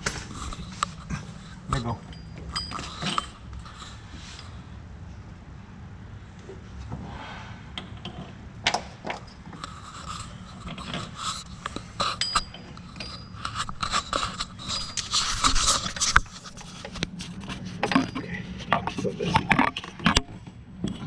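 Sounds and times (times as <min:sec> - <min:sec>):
metal scraping and clinking: 0:00.0 - 0:04.6, 0:09.0 - 0:20.3.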